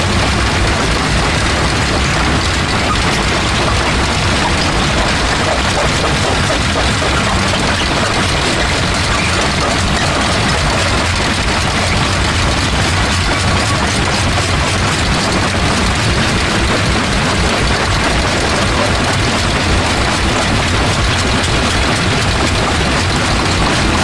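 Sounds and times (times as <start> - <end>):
grinding clatter of rock: 0.0 - 24.0
rock crusher rumbling: 0.0 - 24.0.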